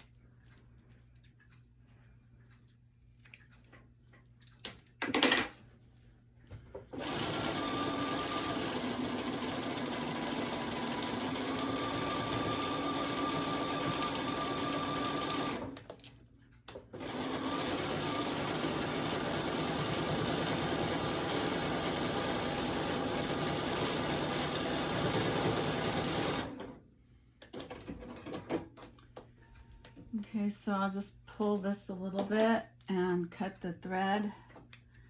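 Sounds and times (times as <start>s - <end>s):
sewing machine stitching: 6.9s - 16.0s, 16.7s - 26.8s.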